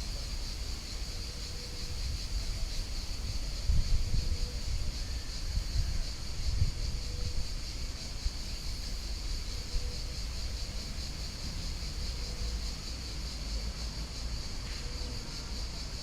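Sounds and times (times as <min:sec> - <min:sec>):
high-pitched insect chorus: 0:00.0 - 0:16.0
wind rumbling on microphone: 0:01.4 - 0:10.3.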